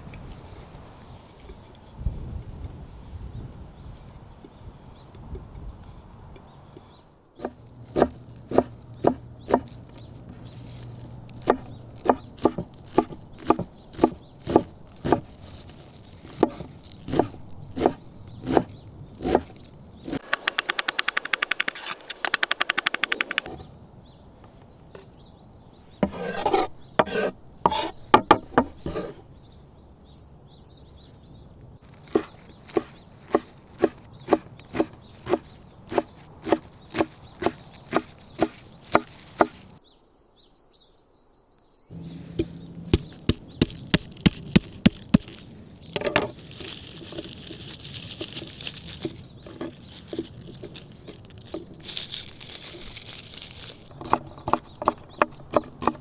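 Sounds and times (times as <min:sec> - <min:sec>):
knife chopping on wooden board: 0:07.4 - 0:23.6, 0:26.0 - 0:29.2, 0:31.9 - 0:39.8, 0:42.0 - 0:51.8, 0:53.9 - 0:56.0.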